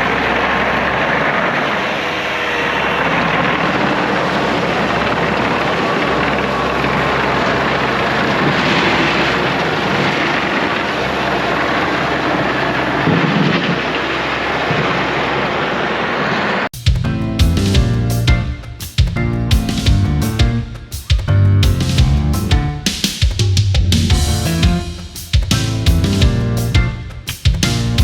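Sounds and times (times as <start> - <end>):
excavator diesel engine running: 0.0 - 15.6.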